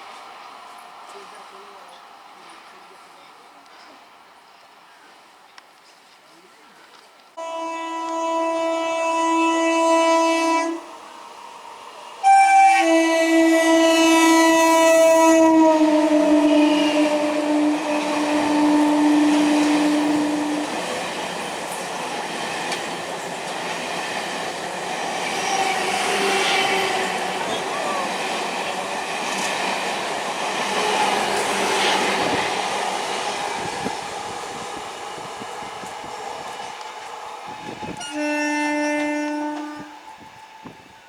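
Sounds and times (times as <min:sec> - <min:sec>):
train horn blasts: 0:07.4 - 0:11.0, 0:12.2 - 0:20.8, 0:37.5 - 0:41.0
train rushing past: 0:07.4 - 0:41.0.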